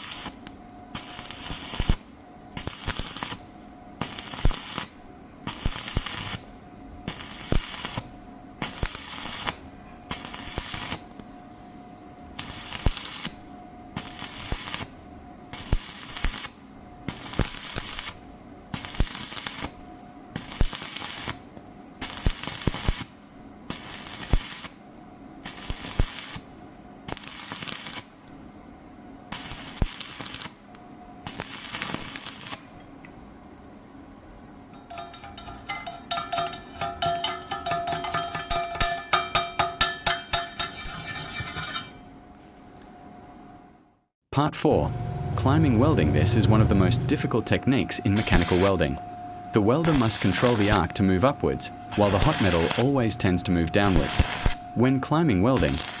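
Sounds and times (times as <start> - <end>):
welding arc crackling: 0.0 - 11.2, 12.4 - 13.4, 14.0 - 19.8, 20.4 - 21.4, 22.0 - 24.8, 25.4 - 28.2, 29.3 - 32.7, 34.8 - 41.9, 47.2 - 49.0, 49.6 - 54.9, 55.5 - 56.0.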